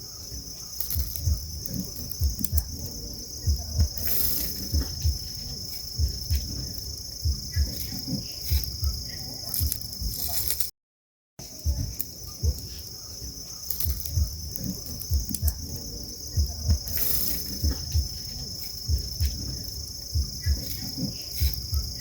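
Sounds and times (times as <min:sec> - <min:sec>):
insects trilling: 0:00.0 - 0:10.7, 0:11.4 - 0:22.0
low thumps: 0:00.9 - 0:10.4, 0:13.8 - 0:22.0.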